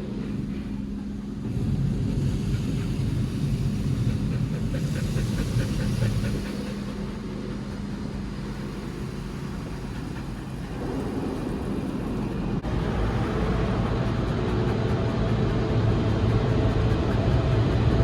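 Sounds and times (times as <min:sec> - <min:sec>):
car wash machinery rumbling: 0:00.0 - 0:18.0.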